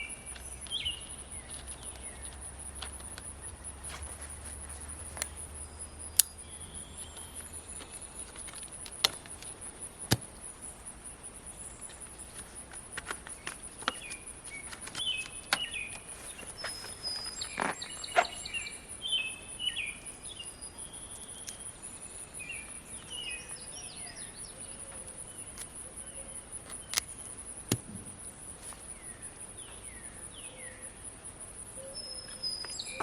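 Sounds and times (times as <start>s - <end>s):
bird chirps: 0.0s - 8.7s, 13.3s - 27.2s, 31.7s - 33.0s
insects droning: 0.0s - 33.0s
sharp clicks and snaps: 6.1s - 6.5s.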